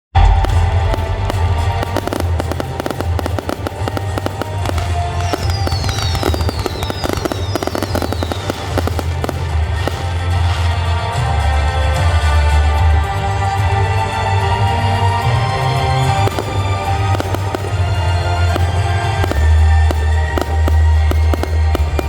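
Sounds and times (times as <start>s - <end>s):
fireworks cracks and bangs: 0.2s - 12.6s, 13.5s - 22.0s
falling firework whistles: 0.4s - 11.1s, 16.2s - 22.0s.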